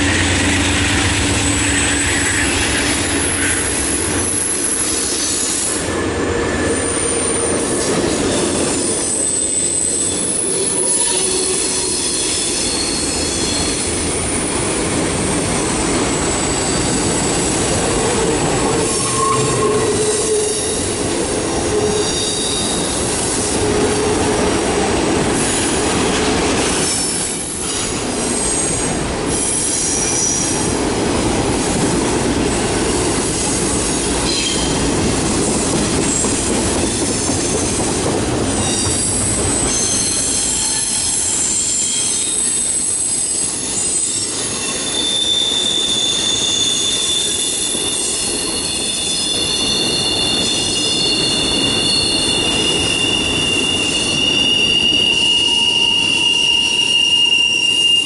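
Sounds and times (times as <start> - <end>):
wheel flange squeals: 0.0 - 13.9, 18.5 - 21.0, 38.6 - 58.0
freight train wheels rumbling: 0.0 - 57.9.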